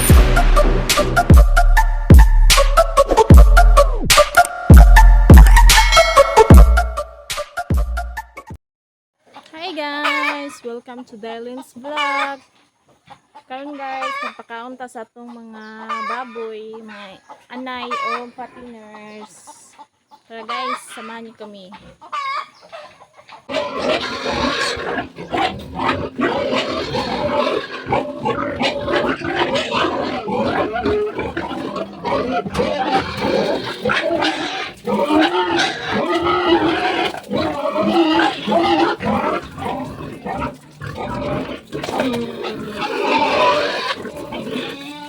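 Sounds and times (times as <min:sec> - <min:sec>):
pigs grunting and squealing: 0:10.0 - 0:10.8, 0:11.8 - 0:14.6, 0:15.8 - 0:19.4, 0:20.3 - 0:45.0.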